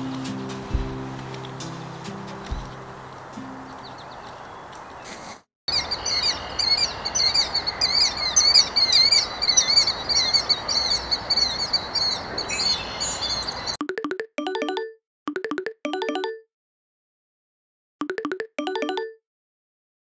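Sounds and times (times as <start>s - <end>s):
outdoor background noise: 0.0s - 13.8s
songbird singing rapid chirps: 0.7s - 13.8s.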